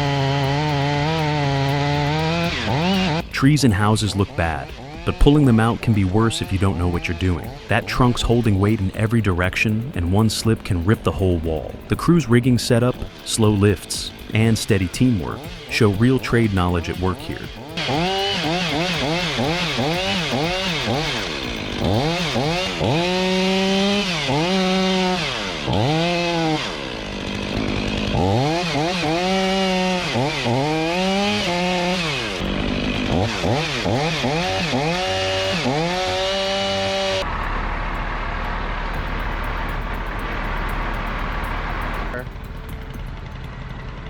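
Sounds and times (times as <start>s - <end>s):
chainsaw engine revving: 0.0s - 44.0s.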